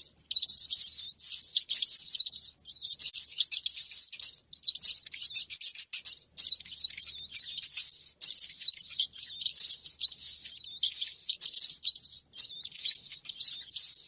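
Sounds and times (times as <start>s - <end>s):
rats squeaking: 0.0s - 14.0s.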